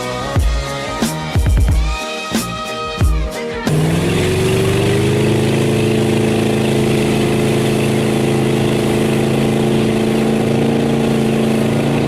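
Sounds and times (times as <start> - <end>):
speedboat engine running: 3.6 - 12.0.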